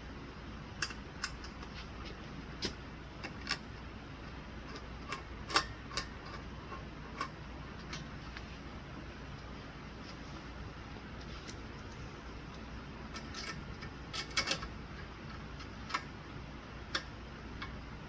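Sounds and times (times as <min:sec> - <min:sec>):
clicks of screws and metal brackets: 0:13.2 - 0:14.7.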